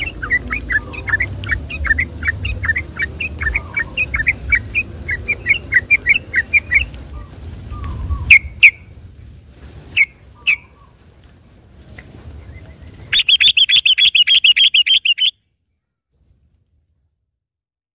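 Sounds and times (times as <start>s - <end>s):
bird singing chirps and rattles: 0.0s - 8.8s, 12.4s - 15.4s.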